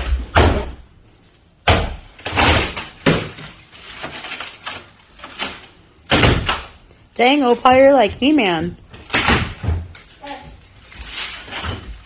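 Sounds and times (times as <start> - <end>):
wall cracking and crashing: 0.0 - 8.2, 8.8 - 12.0
small knocks and scrapes: 9.0 - 12.0.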